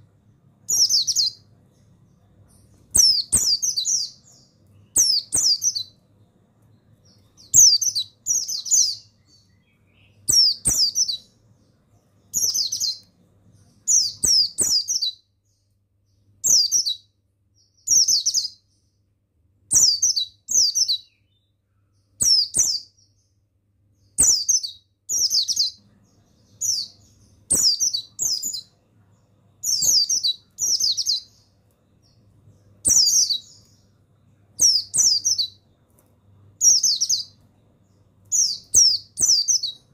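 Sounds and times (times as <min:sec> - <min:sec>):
bird twittering: 0:00.7 - 0:06.0, 0:06.9 - 0:11.4, 0:12.2 - 0:15.2, 0:19.7 - 0:21.5, 0:22.2 - 0:23.1, 0:24.2 - 0:28.8, 0:29.6 - 0:34.0, 0:34.6 - 0:35.6, 0:36.6 - 0:37.4, 0:38.3 - 0:39.9.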